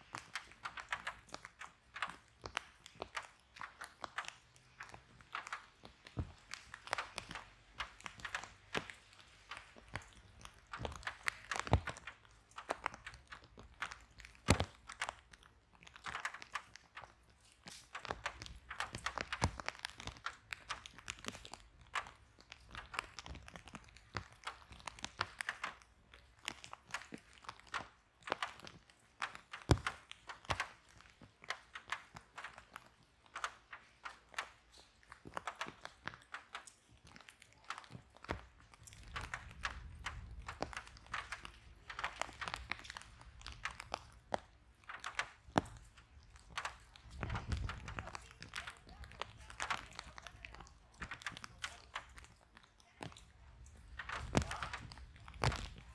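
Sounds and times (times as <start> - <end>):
wood fire crackling and popping: 0.0 - 55.9
low rumble of flame: 38.4 - 50.6.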